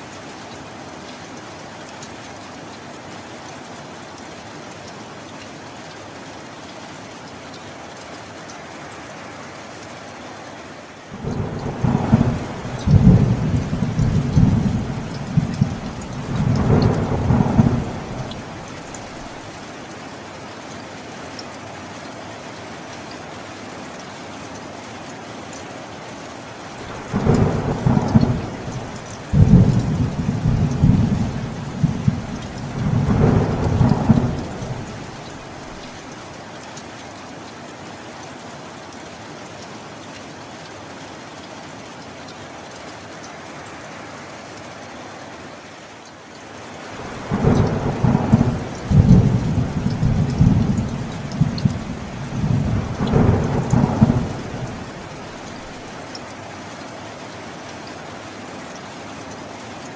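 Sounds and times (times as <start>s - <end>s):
steady rain: 0.0s - 59.9s
thunder rolling: 11.3s - 19.4s, 26.9s - 35.6s, 47.1s - 55.4s.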